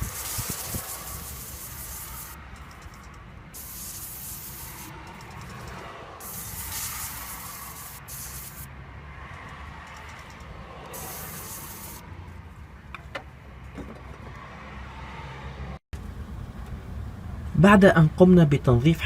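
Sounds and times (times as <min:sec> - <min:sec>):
aerosol spray hissing: 0:00.0 - 0:03.0, 0:03.6 - 0:08.7, 0:10.9 - 0:12.0.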